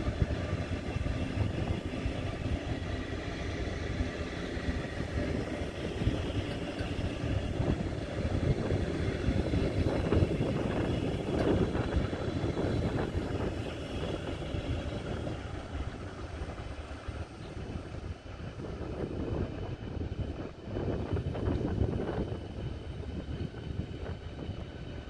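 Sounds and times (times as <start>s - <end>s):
train rumbling past: 0.0s - 25.0s.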